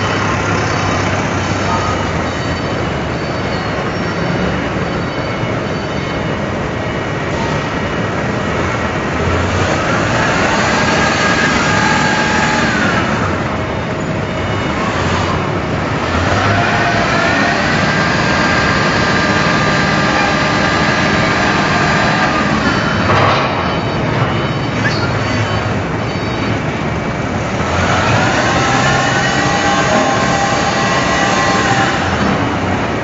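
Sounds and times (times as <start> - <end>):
heavy machinery running: 0.0 - 33.0
motor whine: 7.3 - 23.2, 27.5 - 33.0.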